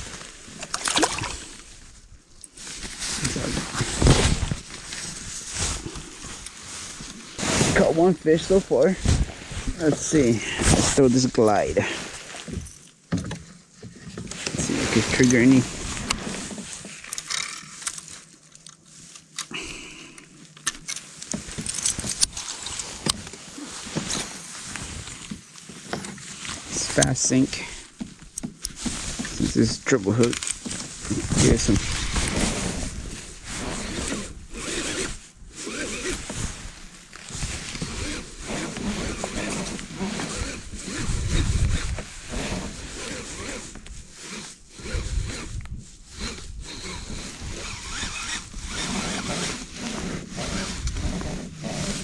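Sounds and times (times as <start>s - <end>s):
water sloshing around kayak: 0.0s - 4.0s, 4.9s - 17.0s
fishing tackle clicks and rattles: 16.9s - 19.5s, 20.4s - 23.4s
spinning reel whir: 33.6s - 36.2s, 37.8s - 45.6s, 46.2s - 52.0s.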